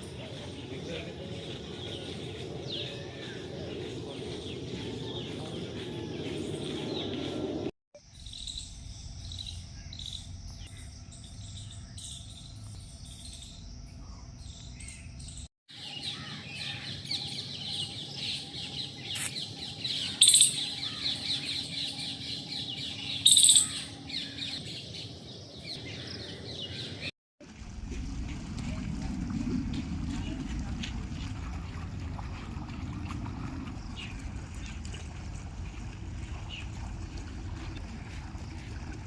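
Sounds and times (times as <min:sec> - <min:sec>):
birds chirping in chorus: 0:08.2 - 0:27.1
loud sharp bird calls: 0:15.8 - 0:24.6.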